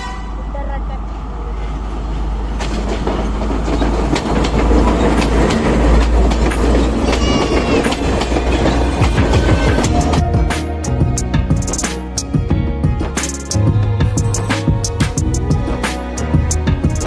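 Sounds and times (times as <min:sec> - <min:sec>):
train rumbling: 0:00.0 - 0:17.0
wheels clacking over rail joints: 0:02.5 - 0:10.7.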